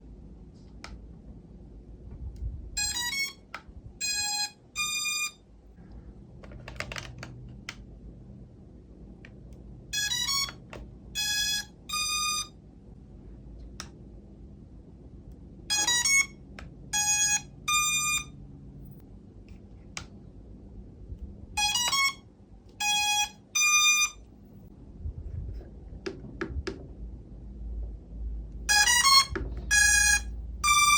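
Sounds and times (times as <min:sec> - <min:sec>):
long electronic beeps: 0:02.8 - 0:03.4, 0:04.0 - 0:05.4, 0:10.0 - 0:10.6, 0:11.2 - 0:12.6, 0:17.0 - 0:18.4, 0:22.8 - 0:24.2.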